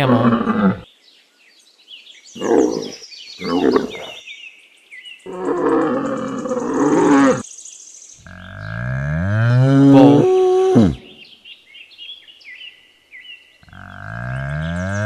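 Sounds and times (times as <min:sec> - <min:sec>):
camel grunting and bellowing: 0:00.0 - 0:00.9, 0:02.4 - 0:04.2, 0:05.3 - 0:07.4, 0:08.2 - 0:11.2, 0:13.6 - 0:15.0.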